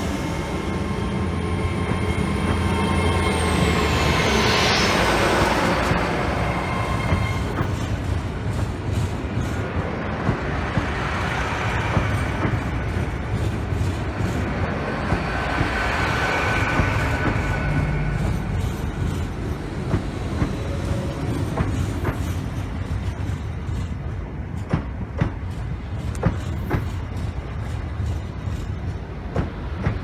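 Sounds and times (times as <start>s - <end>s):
train rumbling past: 0.0s - 30.0s
wheels clicking on track: 0.0s - 30.0s.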